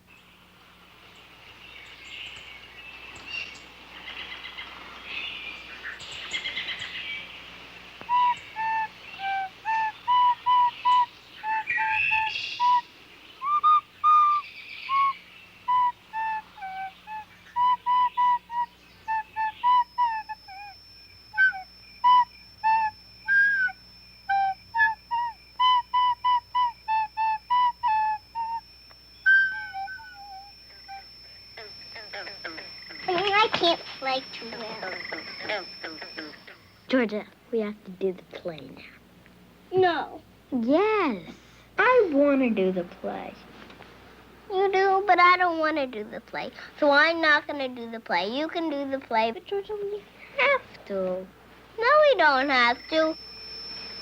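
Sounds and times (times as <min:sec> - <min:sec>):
thin steady high tone: 0:00.0 - 0:54.0
breathy wind-like hiss: 0:00.2 - 0:10.0
short high whistled notes: 0:08.0 - 0:36.8.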